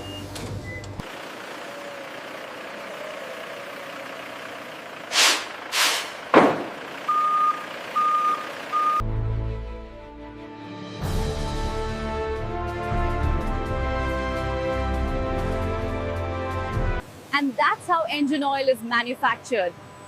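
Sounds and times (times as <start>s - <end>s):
vehicle reversing alarm beeps: 0.0s - 1.0s, 7.0s - 9.0s, 18.2s - 20.0s
short hissing bursts: 5.1s - 6.3s.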